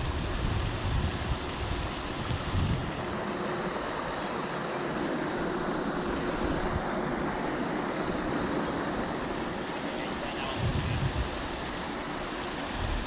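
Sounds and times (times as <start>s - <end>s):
wind buffeting microphone: 0.0s - 4.2s, 5.7s - 7.2s, 10.2s - 13.0s.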